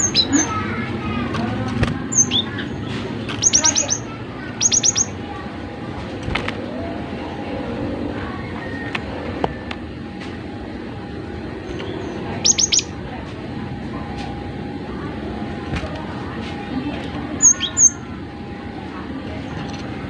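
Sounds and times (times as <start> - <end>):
faint hum: 0.0 - 20.0
bird high notes and chirps: 11.7 - 12.9.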